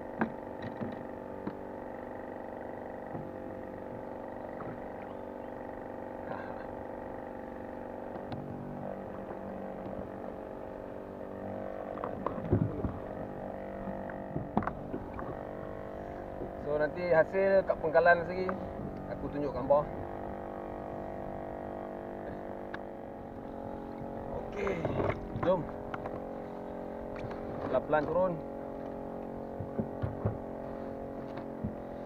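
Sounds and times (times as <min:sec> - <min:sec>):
boat motor running: 0:00.0 - 0:32.0
knocks and clatters: 0:29.6 - 0:30.5.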